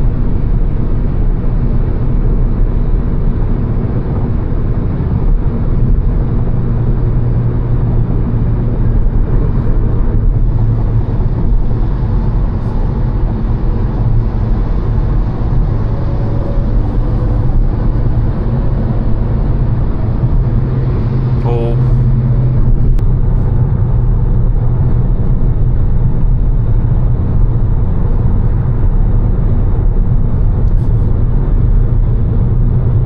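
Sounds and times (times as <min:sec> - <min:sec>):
car engine drone: 0:00.0 - 0:33.0
road rumble: 0:00.0 - 0:33.0.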